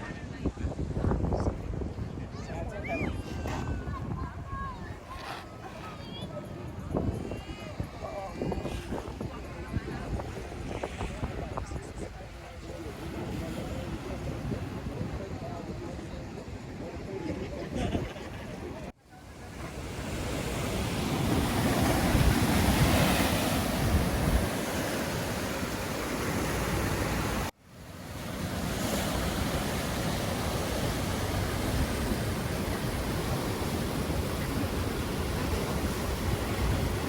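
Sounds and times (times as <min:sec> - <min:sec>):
wind on microphone: 0:00.0 - 0:27.5, 0:28.1 - 0:37.0
ocean surf breaking: 0:17.7 - 0:37.0.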